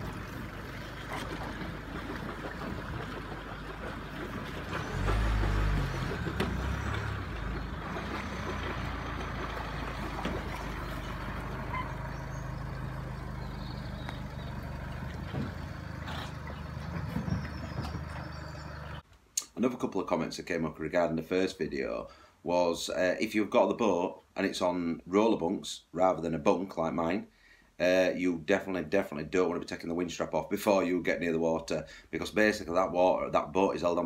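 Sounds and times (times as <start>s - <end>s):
suv engine running: 0.0s - 19.0s.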